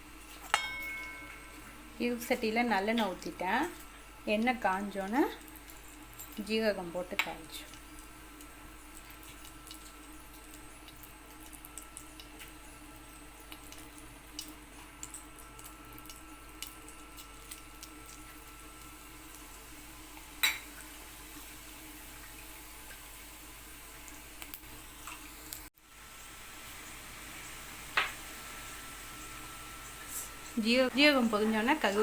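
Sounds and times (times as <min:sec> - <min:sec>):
seeds crackling in hot oil: 0:00.0 - 0:32.0.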